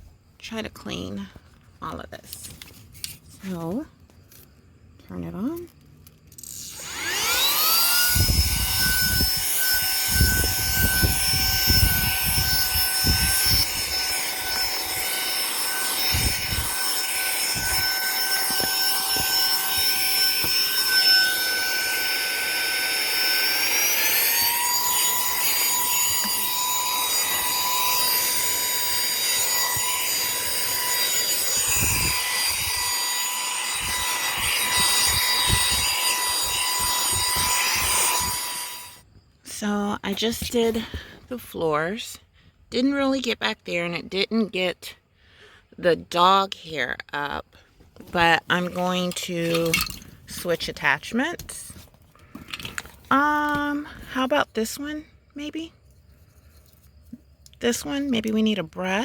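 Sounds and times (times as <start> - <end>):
handheld vacuum motor whine: 5.4 - 39.2, 48.0 - 54.3.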